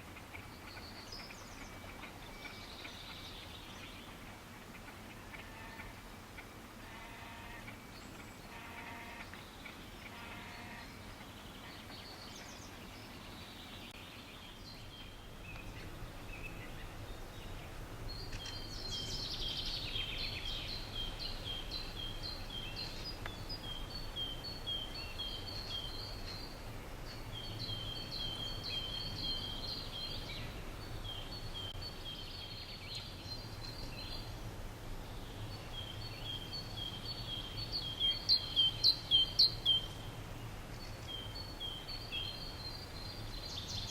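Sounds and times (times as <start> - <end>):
low background rumble: 10.8 - 43.9.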